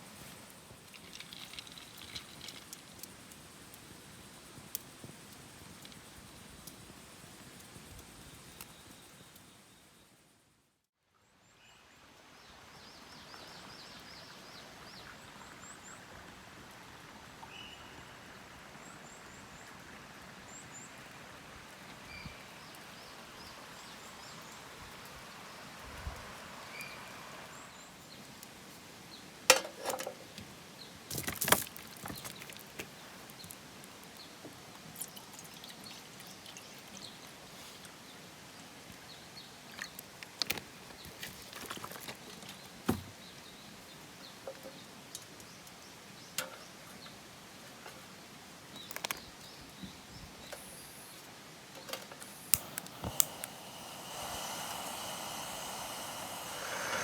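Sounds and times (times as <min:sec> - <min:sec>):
outdoor background hiss: 0:00.0 - 0:57.0
faint bird chirps: 0:22.0 - 0:24.6.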